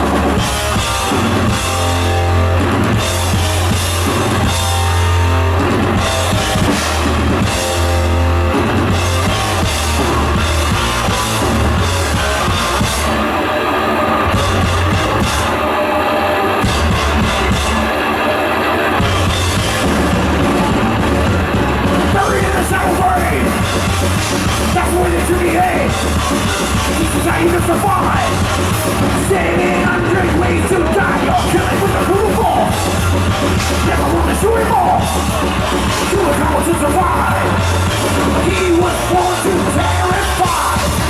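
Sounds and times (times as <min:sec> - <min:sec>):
metal band playing live: 0:00.0 - 0:41.0
shouted sung vocals: 0:19.8 - 0:41.0.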